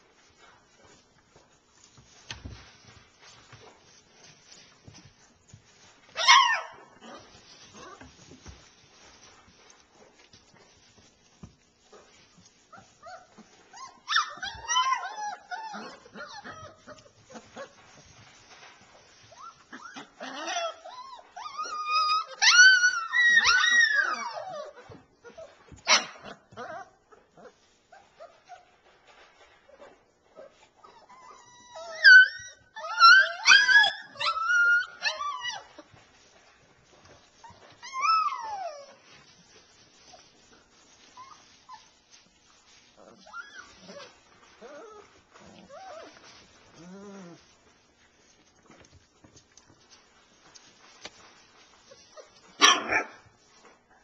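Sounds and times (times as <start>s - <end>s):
puppies whining and whimpering: 12.6s - 28.8s, 29.7s - 42.0s, 42.6s - 47.6s.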